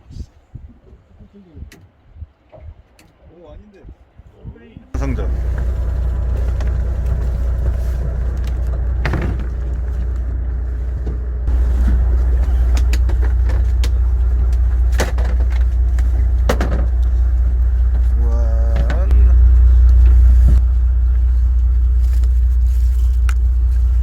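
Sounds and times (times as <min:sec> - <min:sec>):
boat engine rumble: 0:05.0 - 0:24.0.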